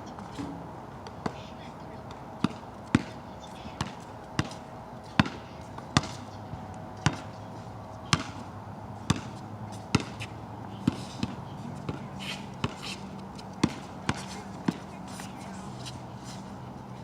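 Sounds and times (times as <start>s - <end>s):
basketball bouncing on wet court: 2.4s - 3.2s, 3.8s - 4.6s, 5.2s - 6.2s, 7.0s - 7.3s, 8.1s - 8.4s, 9.1s - 10.2s, 10.8s - 12.0s, 13.6s - 14.8s.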